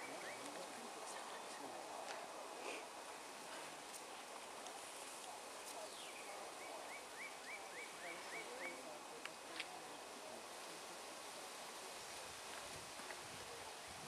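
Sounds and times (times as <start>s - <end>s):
bird chirping: 0.0s - 0.6s, 5.8s - 8.9s
faint steady hiss: 0.0s - 14.0s.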